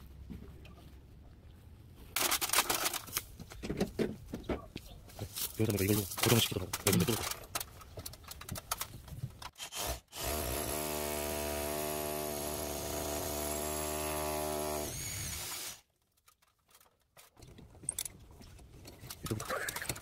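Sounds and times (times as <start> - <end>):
electric drill running: 9.7 - 15.8.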